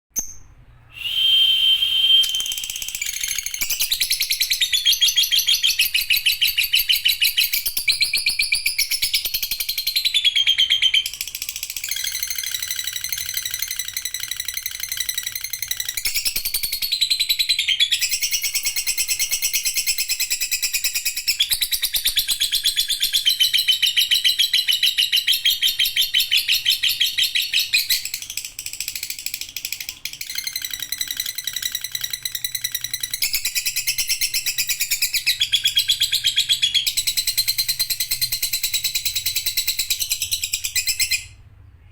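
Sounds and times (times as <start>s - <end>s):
bird whistle: 0.2s - 11.2s, 11.8s - 28.1s
lovebird chattering: 2.2s - 16.4s.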